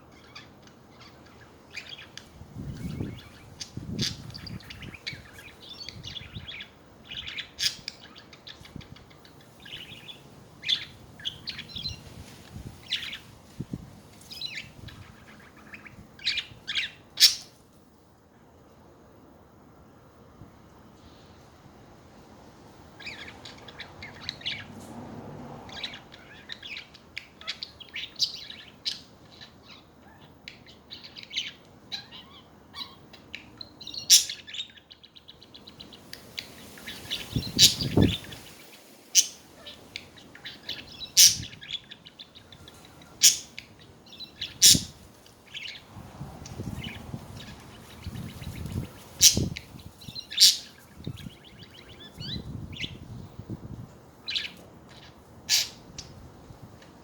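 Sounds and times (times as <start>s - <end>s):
budgerigars chirping and warbling: 0.1s - 12.0s, 12.8s - 13.2s, 14.3s - 17.5s, 23.0s - 24.7s, 25.7s - 38.6s, 39.2s - 45.9s, 46.5s - 53.0s, 54.2s - 56.1s
sharp bird calls: 14.3s - 17.6s, 25.7s - 46.0s, 46.6s - 53.2s, 54.2s - 56.2s.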